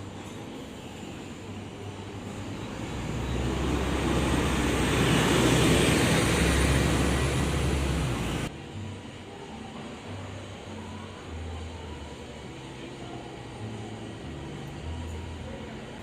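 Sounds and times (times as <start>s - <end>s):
vehicle passing with deep rumble: 2.8s - 8.5s.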